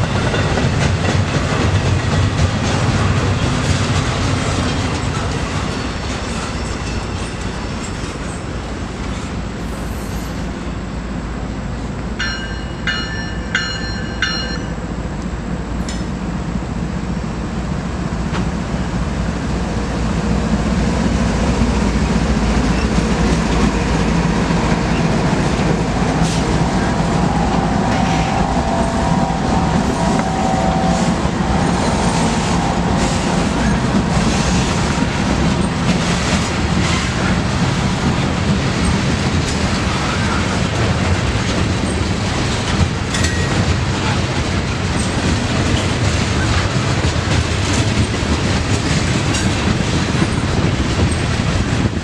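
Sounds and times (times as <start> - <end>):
train wheels rumbling on rail: 0.0 - 52.0
high ringing pings: 12.2 - 14.8.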